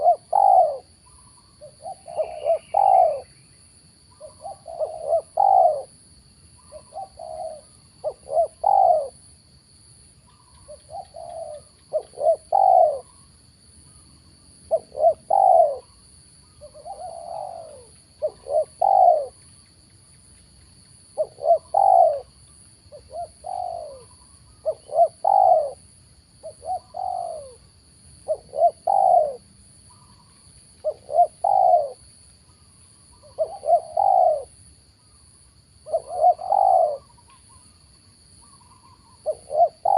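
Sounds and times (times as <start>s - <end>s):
dove cooing: 0.0s - 3.4s, 4.1s - 6.0s, 6.6s - 9.3s, 10.3s - 13.2s, 14.7s - 16.0s, 16.6s - 19.4s, 21.2s - 32.0s, 33.1s - 34.6s, 35.8s - 37.6s, 38.4s - 39.9s.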